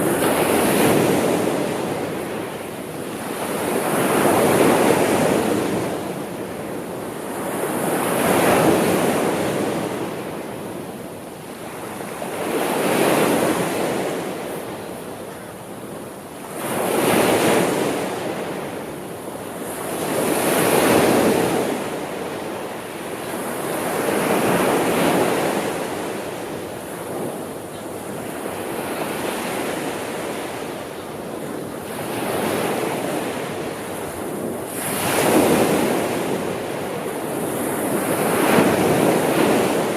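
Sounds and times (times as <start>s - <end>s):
sea waves washing ashore: 0.0s - 39.9s.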